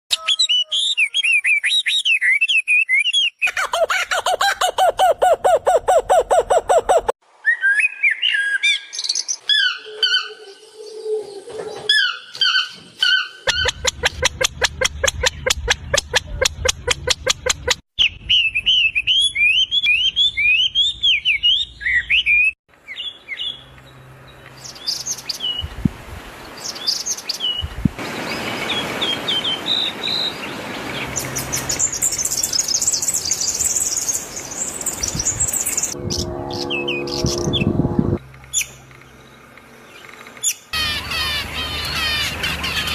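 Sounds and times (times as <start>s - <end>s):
rising bird chirps: 31.3s - 42.2s.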